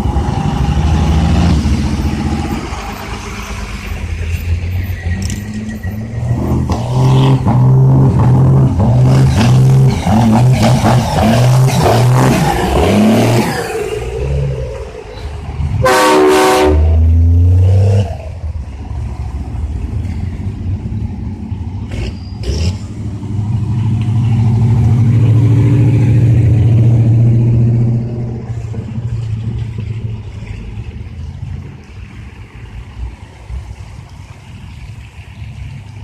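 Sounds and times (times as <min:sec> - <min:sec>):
truck engines passing: 0:00.0 - 0:36.0
truck horn blast: 0:15.8 - 0:17.2.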